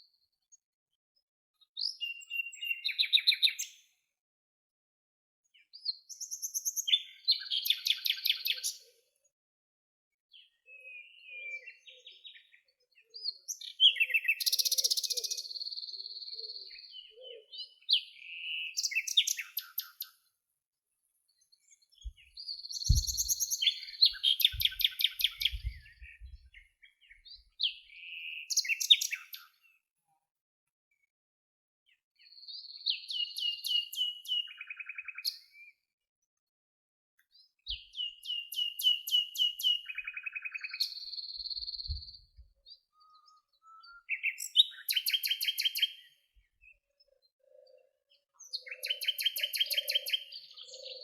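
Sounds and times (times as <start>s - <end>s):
songbird singing: 1.6s - 4.0s, 5.4s - 9.1s, 10.3s - 20.2s, 21.3s - 29.8s, 31.9s - 35.8s, 37.2s - 51.0s
faint low thuds: 22.9s - 23.4s.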